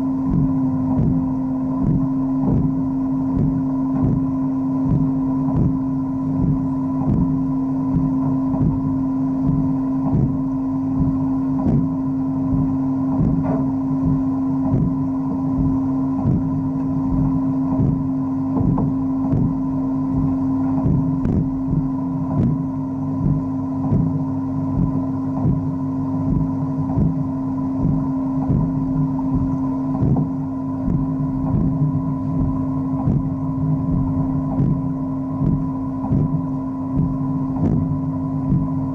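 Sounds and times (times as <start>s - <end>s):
wet-blasting machine motor hum: 0.0s - 38.9s.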